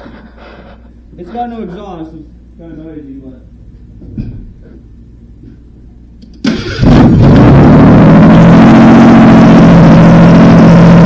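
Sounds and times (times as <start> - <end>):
engine cranking: 6.4 - 7.5
loud engine running without exhaust: 6.5 - 11.0.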